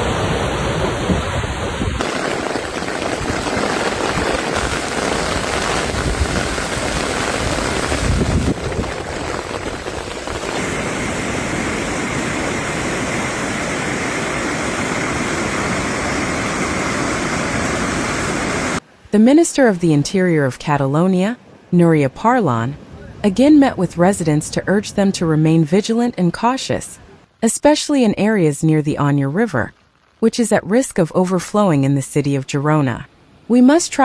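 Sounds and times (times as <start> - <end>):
storm water rushing: 0.0 - 19.0
wind: 0.0 - 27.4, 28.0 - 34.0.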